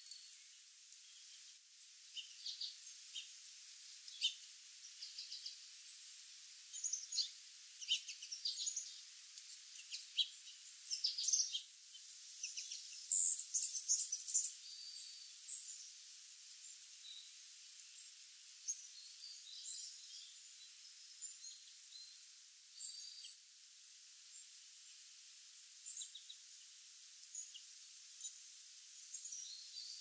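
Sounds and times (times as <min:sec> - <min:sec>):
steady faint hiss: 0:00.0 - 0:30.0
wild birds chirping: 0:02.1 - 0:03.4, 0:04.0 - 0:06.1, 0:06.7 - 0:16.0, 0:25.8 - 0:28.4.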